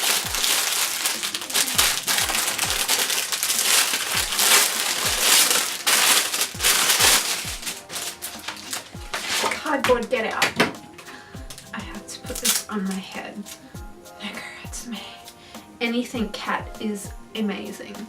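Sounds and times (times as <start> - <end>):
packaging crinkling and rustling: 0.0 - 9.9, 12.3 - 13.6.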